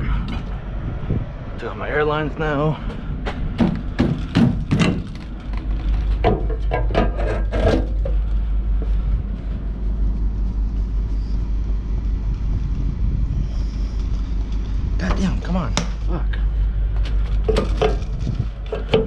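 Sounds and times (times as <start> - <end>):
diesel truck idling: 0.0 - 19.0
sharp knocks: 3.3 - 5.2.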